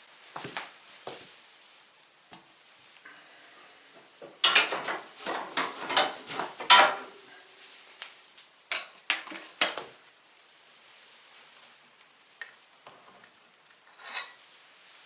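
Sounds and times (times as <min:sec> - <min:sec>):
kitchenware clattering: 0:04.2 - 0:07.3, 0:08.7 - 0:09.9.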